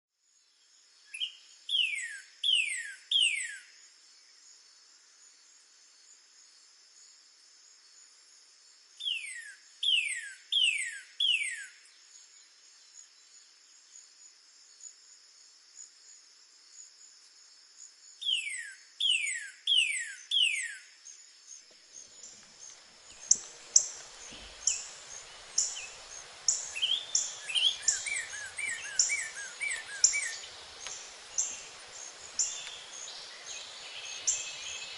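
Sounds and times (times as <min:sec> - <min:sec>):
high insect trill: 0:03.5 - 0:34.9
birds chirping rapidly: 0:21.9 - 0:34.9
cardinal whistling song: 0:23.0 - 0:34.9.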